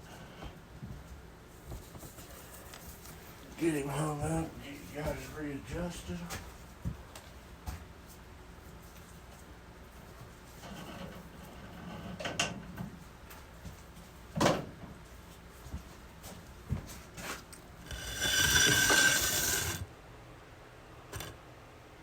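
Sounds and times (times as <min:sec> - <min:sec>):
squeaky scrape: 0:17.8 - 0:19.8.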